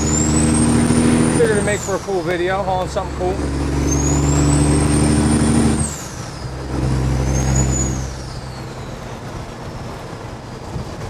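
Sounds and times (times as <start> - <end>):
truck diesel engine revving: 0.0 - 11.0.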